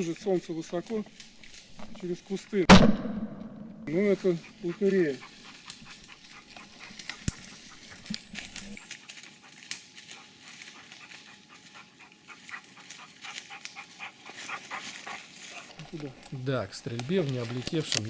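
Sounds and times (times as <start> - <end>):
twigs and undergrowth crackling: 0.0 - 2.7, 3.9 - 18.0
dog panting: 3.9 - 18.0.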